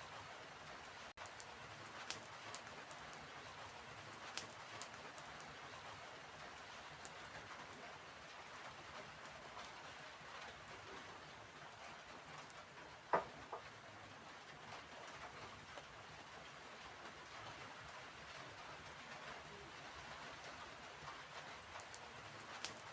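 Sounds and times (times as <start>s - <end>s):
wood fire crackling: 0.1s - 22.9s
fire popping: 1.2s - 5.9s, 21.4s - 22.9s.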